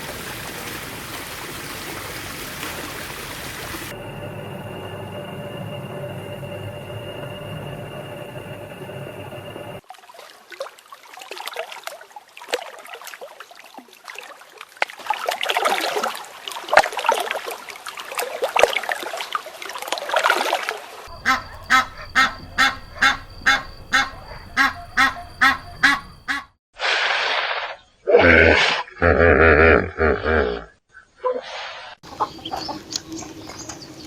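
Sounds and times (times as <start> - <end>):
flock of waterfowl chattering: 21.1 - 26.5
bird honking calls: 21.1 - 26.6.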